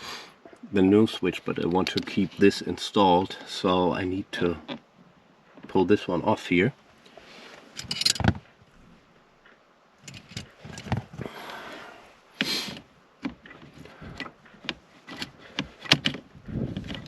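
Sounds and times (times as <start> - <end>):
scraping and rustling: 7.0 - 17.0
plastic parts clicking and knocking: 13.2 - 17.0.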